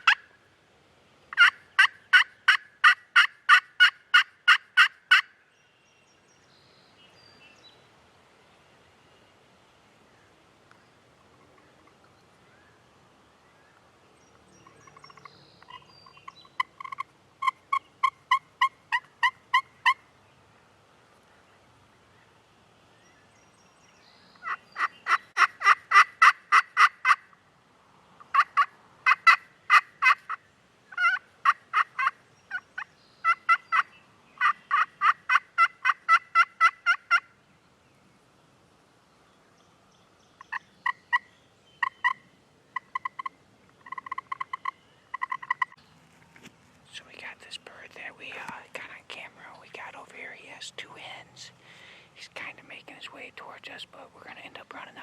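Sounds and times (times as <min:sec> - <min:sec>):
turkey yelping: 0:01.4 - 0:05.3, 0:24.4 - 0:27.2, 0:28.3 - 0:30.4, 0:31.0 - 0:32.6, 0:33.2 - 0:37.3.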